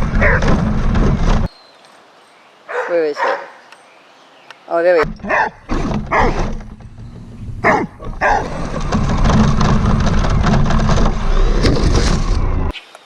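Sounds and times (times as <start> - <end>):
dog barking: 0.2 - 0.5, 2.7 - 3.6, 5.3 - 6.4, 7.6 - 8.5
rc truck motor rattling: 8.2 - 12.3.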